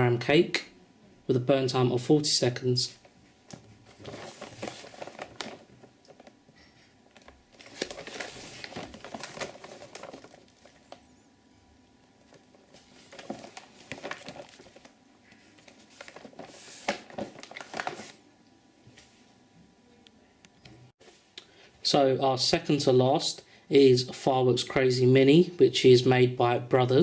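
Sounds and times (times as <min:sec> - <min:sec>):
packaging crinkling and rustling: 0:03.4 - 0:11.2, 0:12.0 - 0:18.2.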